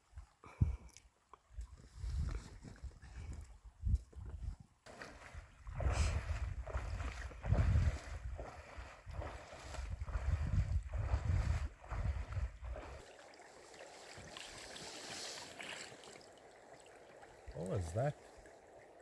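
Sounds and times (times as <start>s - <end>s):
wind buffeting microphone: 5.3s - 13.0s
water hiss: 13.8s - 16.3s.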